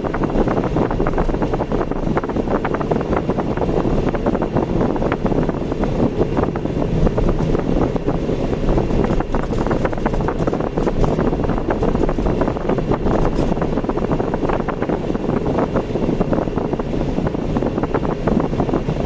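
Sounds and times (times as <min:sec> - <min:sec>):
car engine and tyre rumble: 0:00.0 - 0:19.0
wind noise on microphone: 0:00.0 - 0:19.0
small rattles and clicks: 0:08.9 - 0:13.7.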